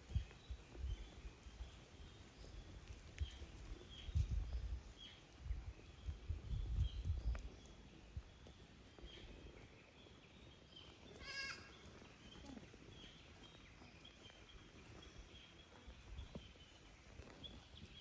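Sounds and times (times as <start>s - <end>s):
faint outdoor background noise: 0.0s - 18.0s
goat bleating: 11.2s - 11.8s.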